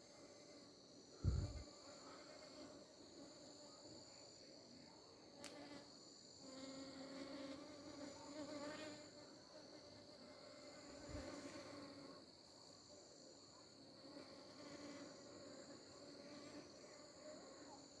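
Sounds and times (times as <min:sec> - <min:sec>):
crickets trilling: 0:00.2 - 0:04.4
flying insect buzzing: 0:01.2 - 0:02.8, 0:05.4 - 0:09.2, 0:10.2 - 0:12.2.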